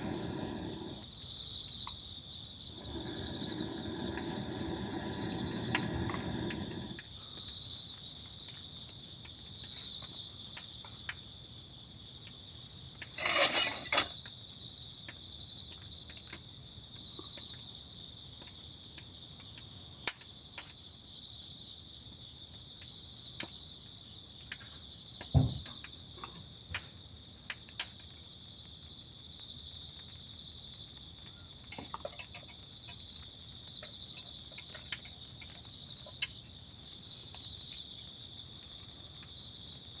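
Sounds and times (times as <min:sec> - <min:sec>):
insects chirping trill: 0:00.0 - 0:18.4, 0:28.1 - 0:40.0
short rattle: 0:13.2 - 0:14.2.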